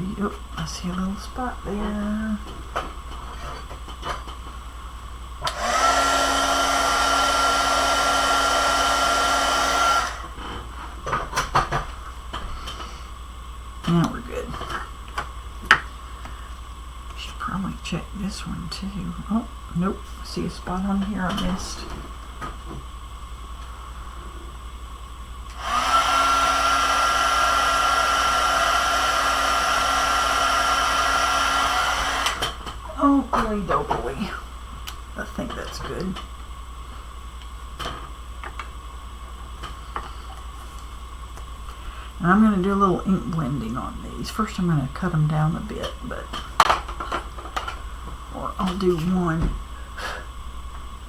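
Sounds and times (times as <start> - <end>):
hot-air gun blowing with whine: 3.2 - 14.9, 21.6 - 32.9, 38.5 - 42.3, 49.6 - 51.0.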